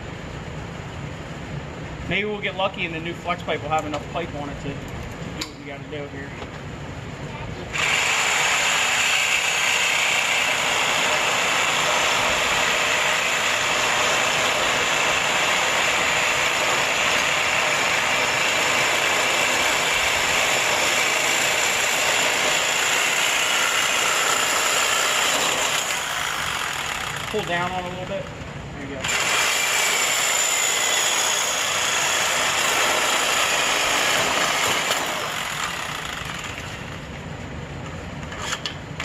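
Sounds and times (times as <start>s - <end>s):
power tool running: 7.7s - 28.3s, 29.0s - 37.1s.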